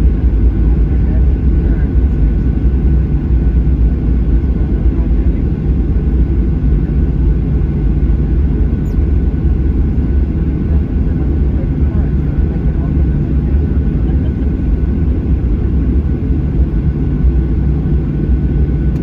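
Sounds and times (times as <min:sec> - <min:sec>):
airplane cabin rumble: 0:00.0 - 0:19.0.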